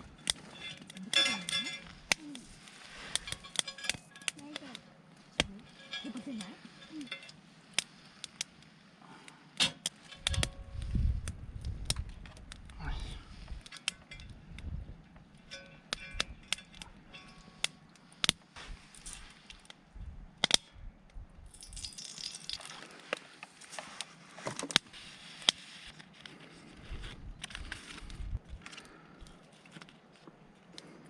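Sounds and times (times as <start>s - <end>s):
wood campfire crackling and popping: 0.0s - 31.0s.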